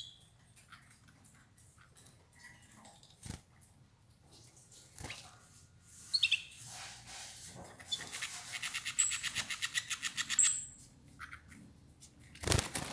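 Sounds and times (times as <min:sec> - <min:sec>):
canaries chirping: 0:06.0 - 0:06.7, 0:07.8 - 0:11.7.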